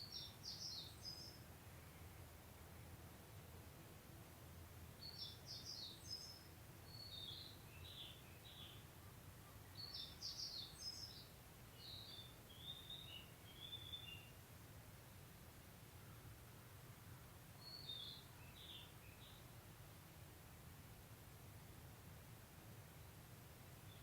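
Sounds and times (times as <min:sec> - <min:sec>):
songbird chirping: 0:00.0 - 0:03.5, 0:04.9 - 0:19.7, 0:22.9 - 0:24.0.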